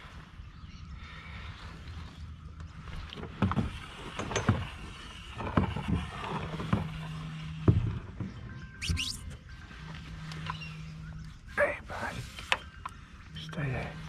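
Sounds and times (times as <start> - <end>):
knocks and bumps on a kayak: 3.0 - 8.6.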